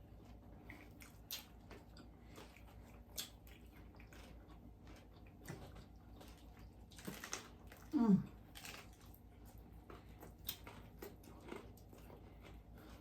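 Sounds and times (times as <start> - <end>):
low steady hum: 0.0 - 13.0
mouth chewing: 0.2 - 13.0.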